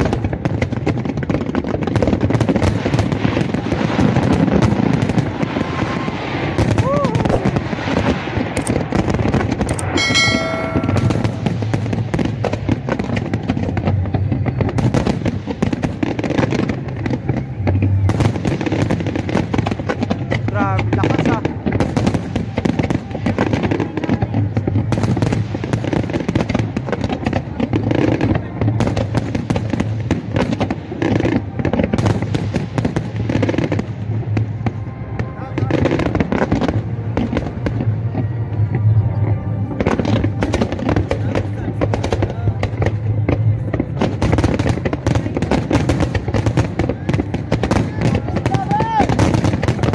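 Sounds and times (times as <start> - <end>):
fireworks popping and crackling: 0.0 - 49.9
steady ringing tone: 9.8 - 11.6.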